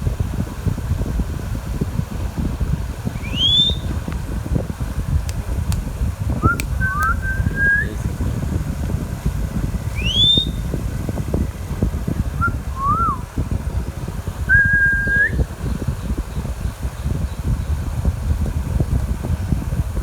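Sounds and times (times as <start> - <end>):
low rumbling noise: 0.0 - 20.0
parrot whistles and chirps: 3.2 - 4.0, 6.4 - 7.9, 9.9 - 10.6, 12.4 - 13.2, 14.5 - 15.4.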